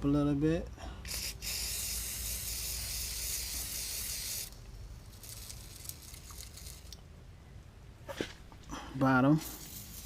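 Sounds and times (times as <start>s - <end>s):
aerosol can spraying hiss: 1.1s - 4.6s, 9.4s - 10.0s.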